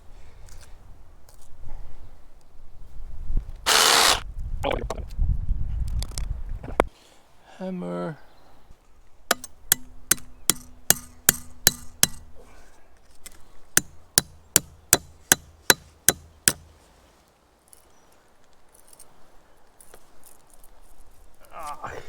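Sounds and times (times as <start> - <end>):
hammer blows ringing: 9.3 - 12.3.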